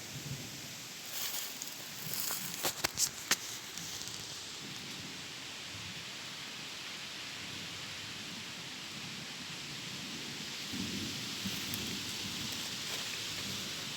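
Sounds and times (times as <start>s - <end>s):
steady rain-like hiss: 0.0s - 13.9s
brief rustle: 1.1s - 4.4s.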